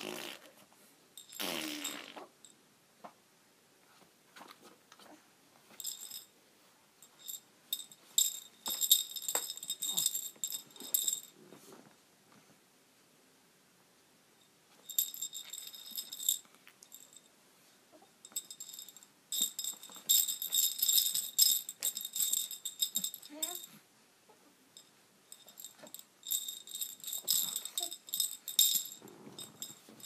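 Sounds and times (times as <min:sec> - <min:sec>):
baby rattle shaken: 0:01.2 - 0:02.1, 0:05.7 - 0:06.3, 0:07.0 - 0:11.3, 0:14.9 - 0:17.2, 0:18.2 - 0:23.8, 0:25.3 - 0:30.0.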